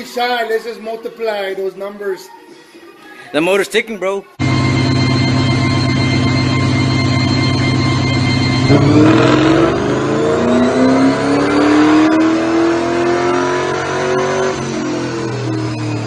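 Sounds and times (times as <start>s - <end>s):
car engine revving on a dyno: 4.4s - 16.0s.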